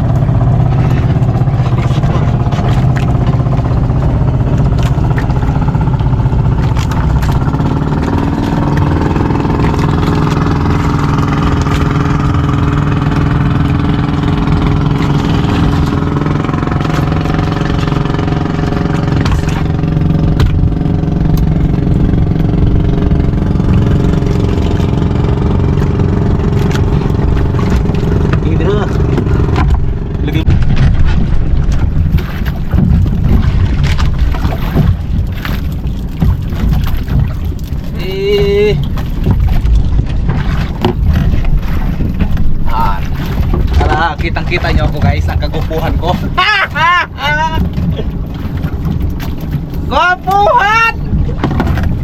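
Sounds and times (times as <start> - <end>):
boat engine running: 0.0 - 52.0.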